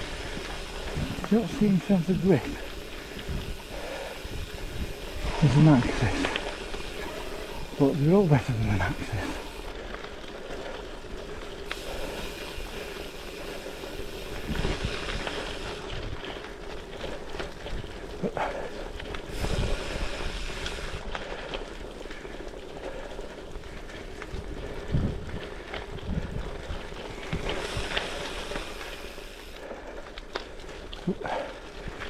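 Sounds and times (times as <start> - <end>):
wind buffeting microphone: 0.0 - 9.6, 13.7 - 18.2, 23.6 - 28.4
bicycle tyres rolling on gravel: 0.0 - 32.0.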